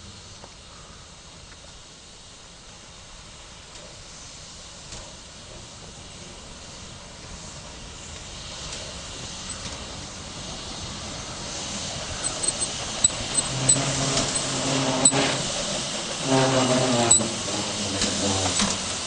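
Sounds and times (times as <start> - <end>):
train approaching with rushing hiss: 0.0 - 19.0
short high-pitched squeaks: 12.2 - 18.7.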